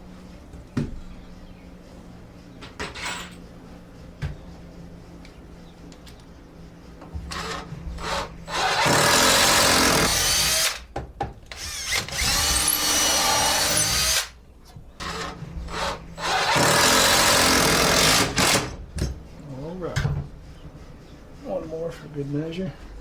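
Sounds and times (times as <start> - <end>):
power drill driving screws: 7.3 - 10.9, 11.5 - 14.3, 15.0 - 18.7.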